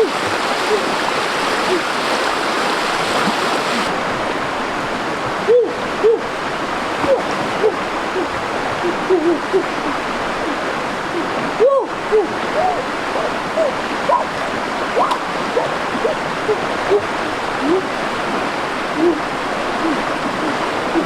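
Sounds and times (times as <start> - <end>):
running water rushing: 0.0 - 21.0
hooting animal calls: 11.6 - 14.4, 15.0 - 18.0.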